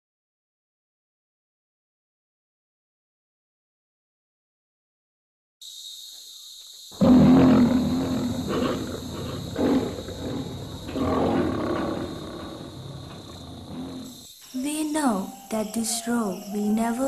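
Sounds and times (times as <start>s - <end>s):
high insect drone: 5.6s - 17.0s
lion roaring: 7.0s - 14.2s.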